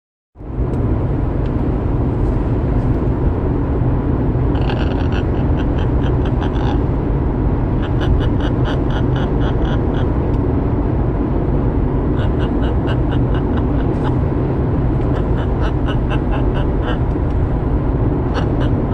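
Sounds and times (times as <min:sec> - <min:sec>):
steady low rumble: 0:00.4 - 0:18.9
bird chirping: 0:04.6 - 0:06.8, 0:07.8 - 0:10.1, 0:12.2 - 0:14.2, 0:15.1 - 0:17.2, 0:18.3 - 0:18.9.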